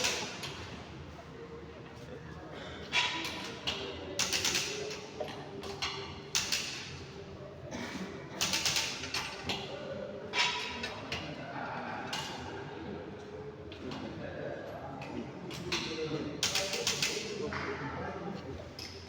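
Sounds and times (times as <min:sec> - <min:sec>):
low background murmur: 0:00.0 - 0:19.0.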